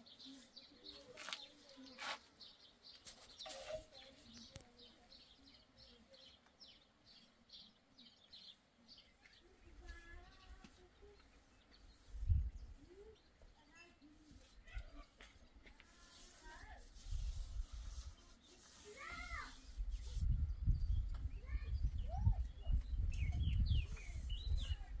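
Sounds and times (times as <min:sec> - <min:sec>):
brush scraping metal: 0:00.1 - 0:02.3, 0:03.0 - 0:04.6, 0:09.8 - 0:20.4
small bird chirping: 0:17.6 - 0:25.0.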